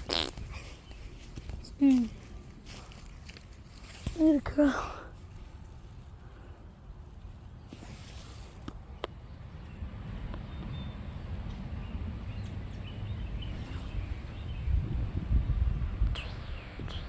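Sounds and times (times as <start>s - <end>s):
small birds chirping: 0.0s - 17.0s
low microphone rumble: 9.4s - 17.0s.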